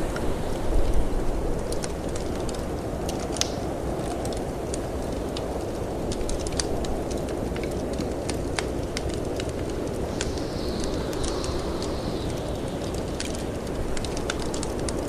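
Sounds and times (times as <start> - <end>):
wind rushing: 0.0 - 1.7, 9.7 - 15.0
wood fire crackling and popping: 0.0 - 15.0.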